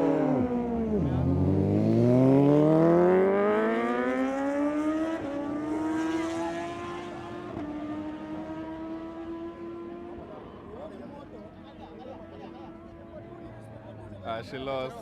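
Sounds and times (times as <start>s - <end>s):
motorcycle engine accelerating: 0.0s - 10.7s.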